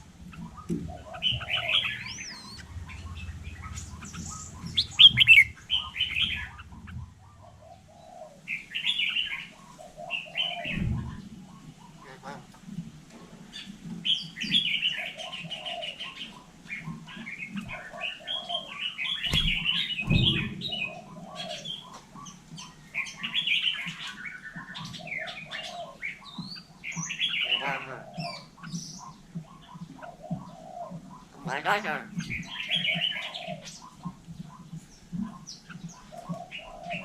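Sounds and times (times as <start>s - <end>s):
myna bird chattering: 0.3s - 10.9s, 14.0s - 37.0s
low knocks: 19.3s - 20.9s.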